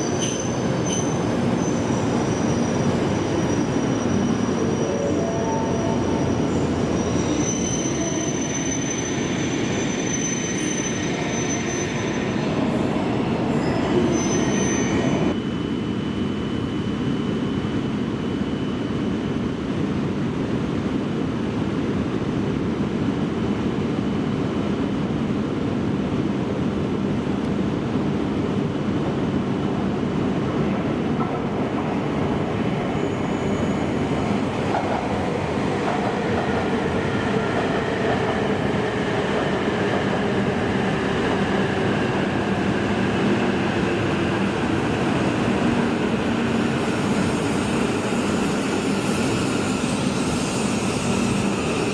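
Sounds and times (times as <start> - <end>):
train wheel squeal: 0.0 - 19.0, 31.6 - 51.9.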